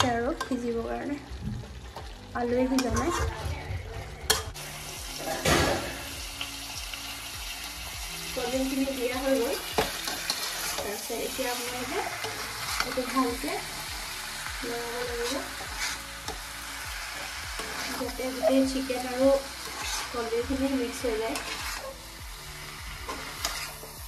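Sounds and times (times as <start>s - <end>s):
curry sizzling in a wok: 0.0s - 24.0s
metal spatula scraping pan: 2.6s - 4.6s, 15.0s - 16.4s, 17.2s - 22.1s, 23.1s - 24.0s.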